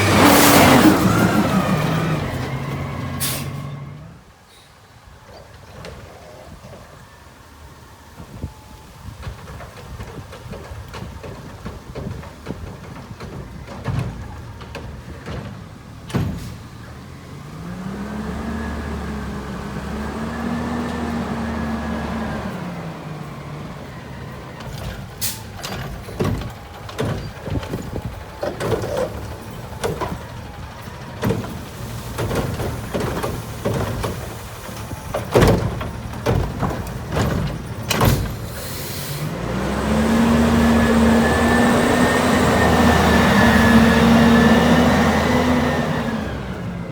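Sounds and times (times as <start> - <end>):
garbage truck engine revving: 0.0 - 4.4, 9.9 - 46.9
bangs of waste falling into hopper: 24.6 - 38.6.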